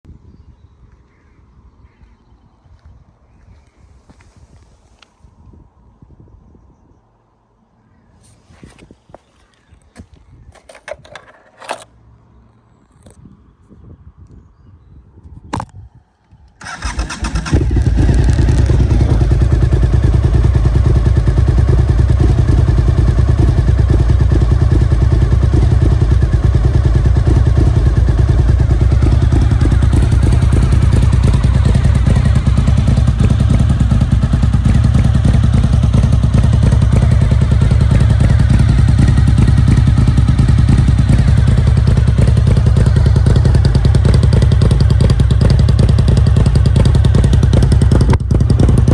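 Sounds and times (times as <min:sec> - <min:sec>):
motorcycle engine cranking: 0:09.9 - 0:12.0, 0:16.6 - 0:20.8, 0:25.5 - 0:48.9
motorcycle engine idling loudly: 0:16.7 - 0:48.9.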